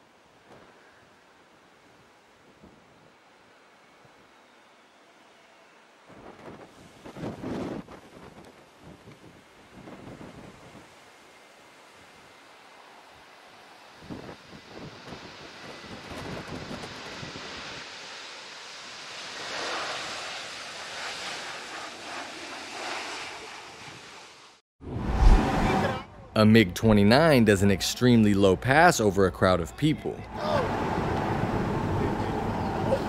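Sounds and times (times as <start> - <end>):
gusty wind rushing: 24.8 - 26.1.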